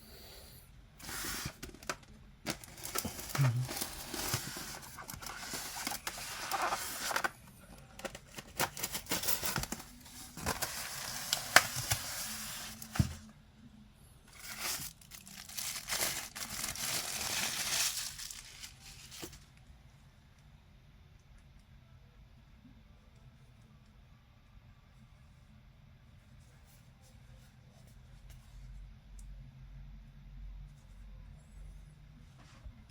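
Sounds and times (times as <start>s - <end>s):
packaging crinkling and rustling: 1.4s - 13.3s, 14.3s - 19.6s.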